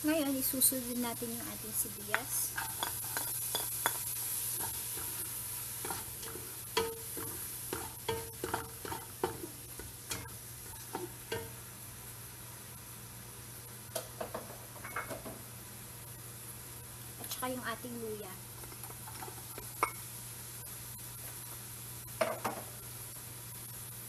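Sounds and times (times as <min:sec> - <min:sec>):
onion sizzling in hot oil: 0:00.0 - 0:24.0
utensil scraping and clinking pot: 0:02.5 - 0:11.6.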